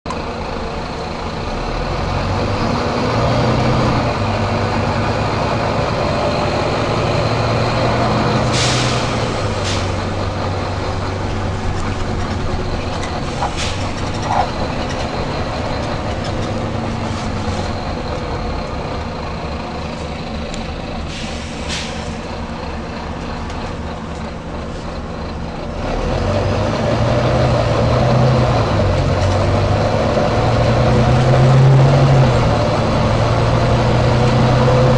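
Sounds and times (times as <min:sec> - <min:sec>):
bus diesel engine running: 0:00.1 - 0:34.9
air hisses: 0:08.5 - 0:10.0.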